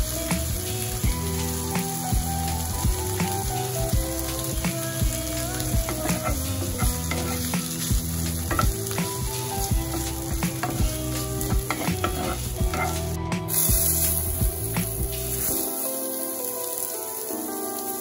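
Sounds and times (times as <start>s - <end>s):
meat sizzling in a skillet: 0.0s - 18.0s
spatula knocking and scraping pan: 5.8s - 13.2s.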